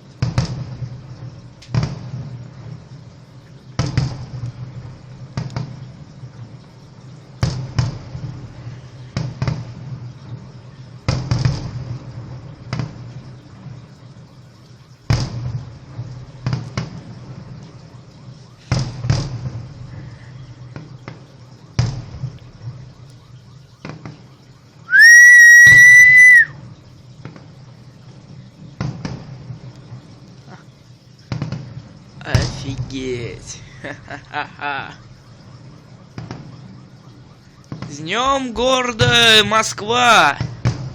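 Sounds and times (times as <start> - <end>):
fireworks bangs with rumble: 0.0 - 40.9
loud shrill firework whistle: 24.8 - 26.6, 36.2 - 40.9.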